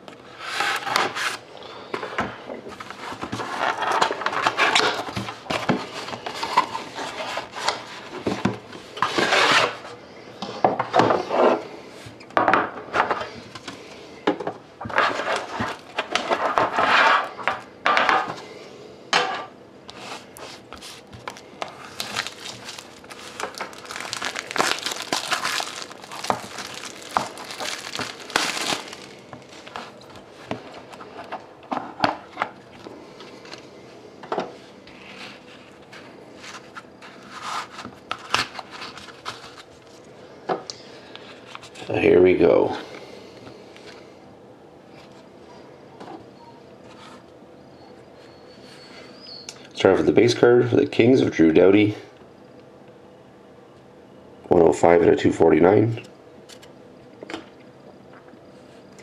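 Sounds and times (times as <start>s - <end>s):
plastic crinkling: 20.4s - 30.2s.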